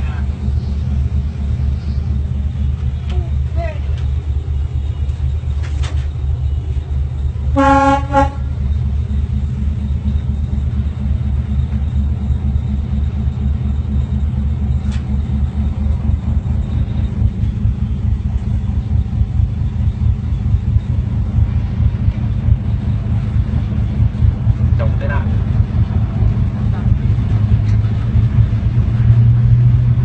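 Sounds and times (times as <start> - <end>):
diesel locomotive engine rumble: 0.0 - 30.0
train horn blast: 7.5 - 8.6.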